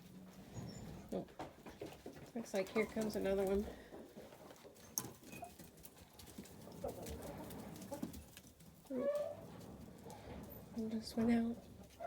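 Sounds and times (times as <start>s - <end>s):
chickens clucking softly: 0.3s - 9.4s.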